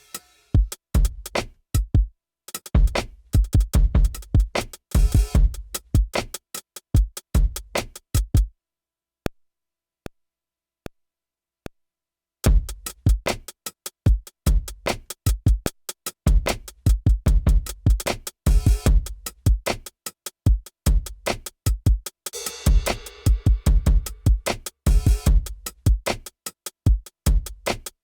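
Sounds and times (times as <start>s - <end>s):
hi-hats: 0.0s - 1.9s, 2.5s - 8.3s, 12.6s - 28.0s
kick drum: 0.6s - 2.1s, 2.7s - 6.2s, 7.0s - 8.5s, 12.5s - 13.4s, 14.1s - 15.7s, 16.3s - 19.7s, 20.5s - 22.0s, 22.7s - 26.1s, 26.9s - 27.7s.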